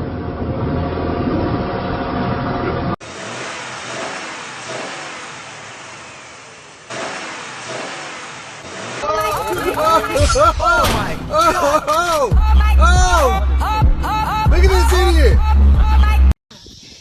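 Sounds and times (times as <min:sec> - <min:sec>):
car engine: 0:00.0 - 0:12.9
road noise: 0:00.0 - 0:13.7.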